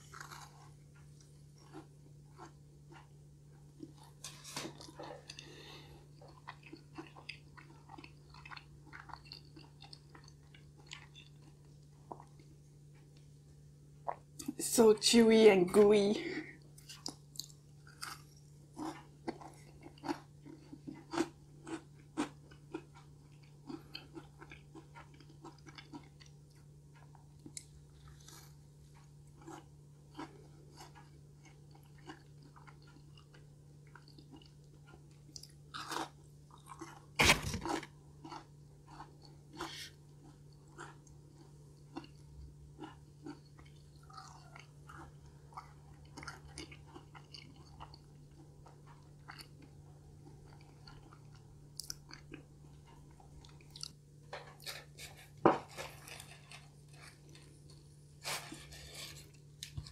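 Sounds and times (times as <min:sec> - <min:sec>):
chewing soft food: 0:00.0 - 0:14.6, 0:16.3 - 0:59.9
faint low hum: 0:00.0 - 0:59.9
bite sound: 0:37.2 - 0:37.9.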